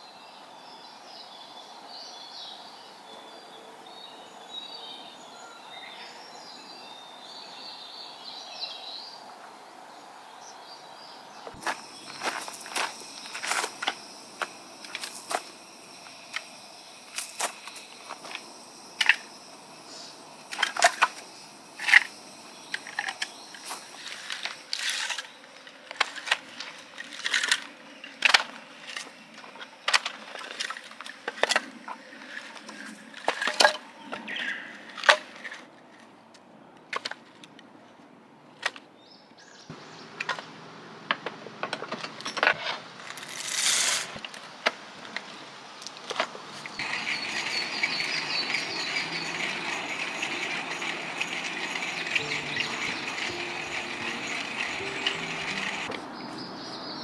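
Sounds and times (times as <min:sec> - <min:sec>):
faint insect buzz: 0:06.4 - 0:35.1, 0:46.4 - 0:57.0
steady background noise: 0:09.1 - 0:38.6, 0:44.0 - 0:57.0
objects being handled: 0:11.5 - 0:25.2, 0:46.1 - 0:56.5.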